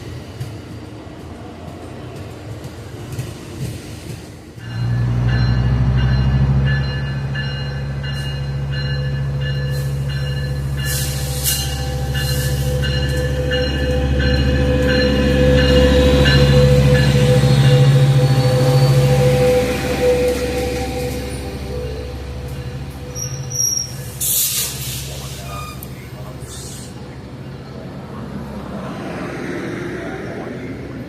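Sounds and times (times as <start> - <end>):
locomotive bell ringing: 4.6 - 24.3
locomotive engine running: 4.8 - 28.6
short hiss: 24.2 - 25.5.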